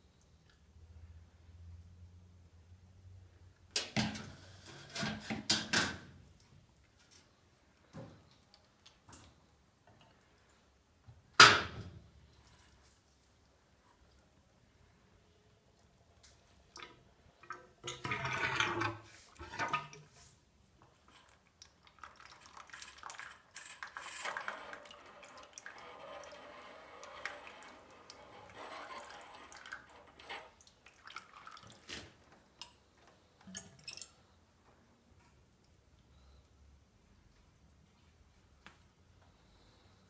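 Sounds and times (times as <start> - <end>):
oil pouring and dripping: 20.8 - 34.3.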